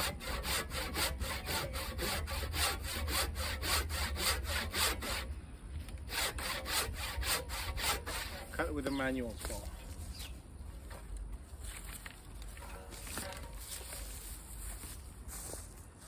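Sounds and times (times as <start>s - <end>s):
hand saw cutting wood: 0.0s - 5.3s, 6.1s - 8.7s.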